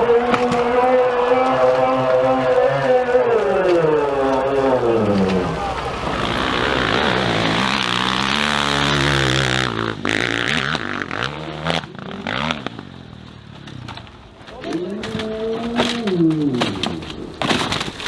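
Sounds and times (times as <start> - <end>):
dirt bike engine revving: 0.0 - 13.9
sharp cracks: 0.0 - 18.0.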